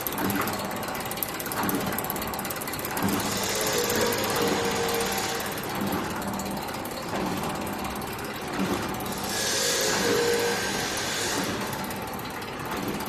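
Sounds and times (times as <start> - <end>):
welding machine clattering: 0.0 - 13.0
machine hiss: 3.0 - 6.1, 9.1 - 12.2.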